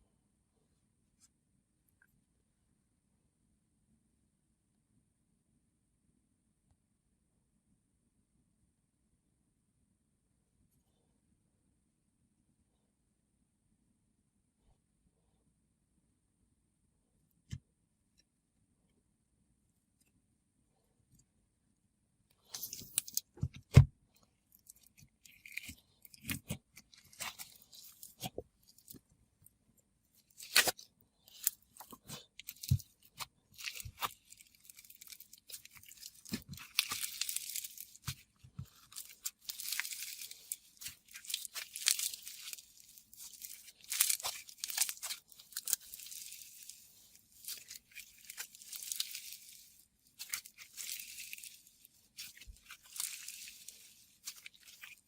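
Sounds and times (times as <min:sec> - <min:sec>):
slime crackling and popping: 0:22.4 - 0:23.8, 0:24.5 - 0:29.0, 0:30.2 - 0:55.0.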